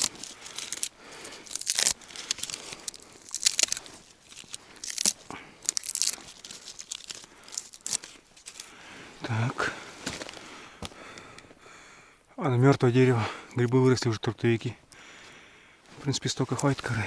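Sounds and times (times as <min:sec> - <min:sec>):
tree bark ripping and crunching: 0:00.0 - 0:08.8.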